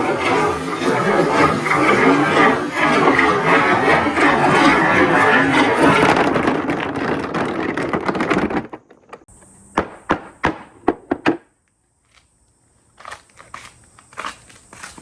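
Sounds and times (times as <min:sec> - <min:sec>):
marbles rattling down a track: 0:00.1 - 0:09.2.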